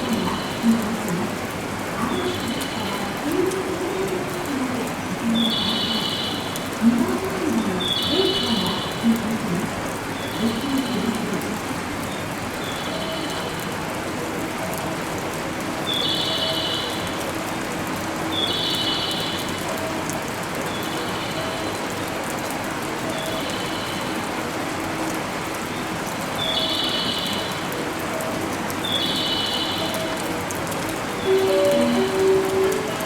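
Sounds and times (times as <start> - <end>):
rain hiss on roof: 0.0 - 33.0
short high-pitched tones: 31.3 - 33.0.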